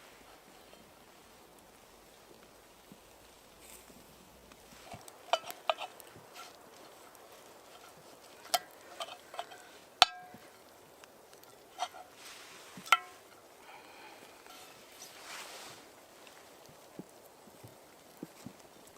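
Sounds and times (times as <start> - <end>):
metal utensils clinking on cookware: 7.8 - 10.6, 12.8 - 13.3.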